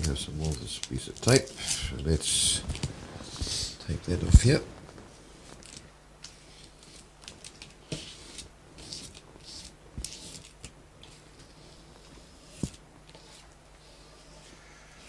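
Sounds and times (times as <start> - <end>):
masking tape peeling off paper: 5.6 - 11.2.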